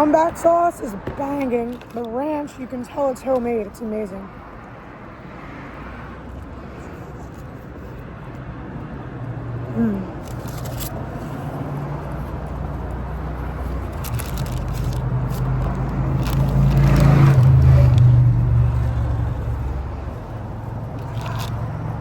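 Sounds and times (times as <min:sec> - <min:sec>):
car engine driving past: 0:14.9 - 0:22.0.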